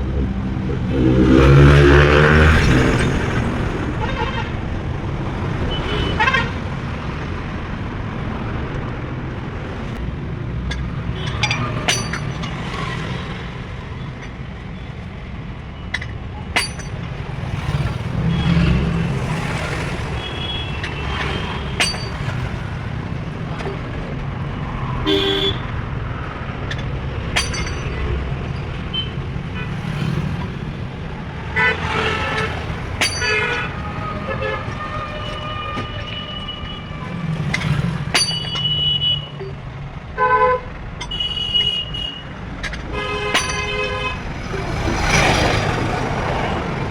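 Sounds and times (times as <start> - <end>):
metallic clicks and knocks: 10.0 - 12.8, 14.0 - 14.7, 15.8 - 17.3, 20.3 - 24.0, 26.2 - 29.0, 32.2 - 33.8, 37.3 - 39.8, 40.9 - 45.3.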